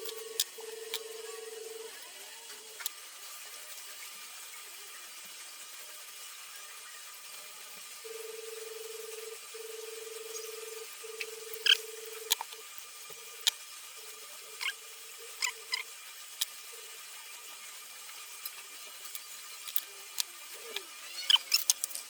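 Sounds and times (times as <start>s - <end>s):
steady hum: 0.0s - 4.1s, 8.0s - 20.9s
short high squeaks and clicks: 11.2s - 12.4s, 20.7s - 22.0s.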